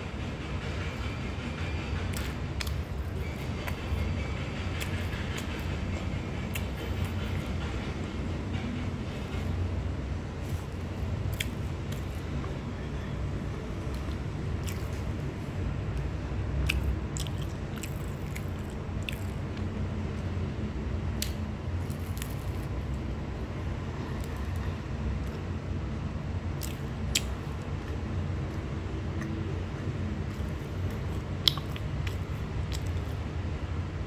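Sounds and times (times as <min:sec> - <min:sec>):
chewing flaky pastry: 0:10.4 - 0:12.5, 0:13.8 - 0:15.4, 0:16.0 - 0:20.3, 0:21.2 - 0:23.1, 0:26.5 - 0:33.2.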